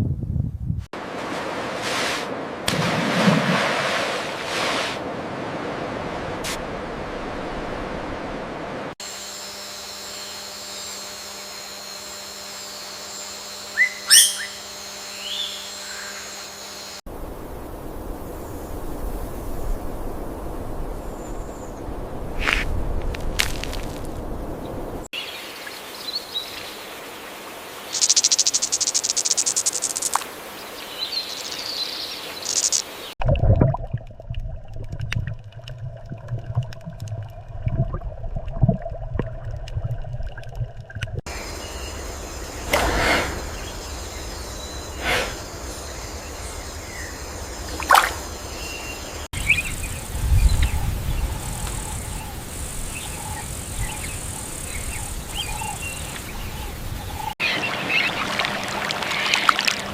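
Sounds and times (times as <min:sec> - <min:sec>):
wind: 0:00.0 - 0:59.9
insects hissing: 0:09.0 - 0:22.6, 0:25.0 - 0:33.2, 0:41.3 - 0:57.4
bird chirps and calls: 0:13.8 - 0:14.6, 0:30.9 - 0:32.9.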